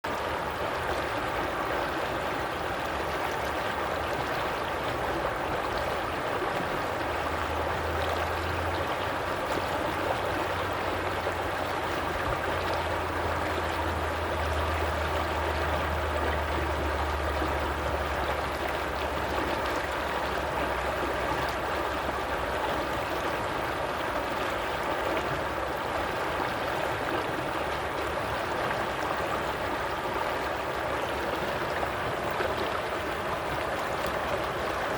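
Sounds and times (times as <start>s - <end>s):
stream of running water: 0.0s - 34.9s.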